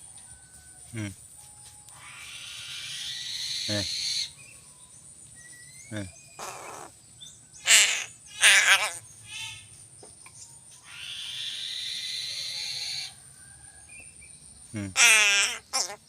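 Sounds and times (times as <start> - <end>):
crow cawing: 6.4 - 6.9, 7.6 - 9.6, 14.9 - 16.0.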